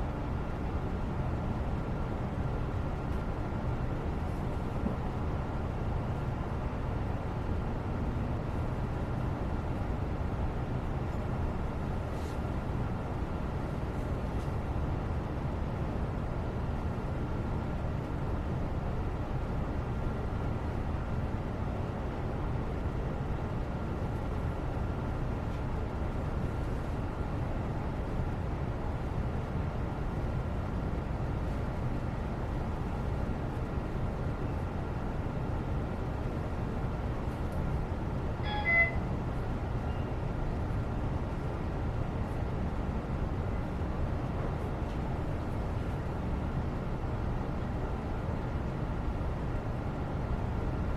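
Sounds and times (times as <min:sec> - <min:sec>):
low rumbling background noise: 0:00.0 - 0:50.9
faint high hum: 0:34.3 - 0:43.9
multi-tone beep: 0:38.4 - 0:39.1.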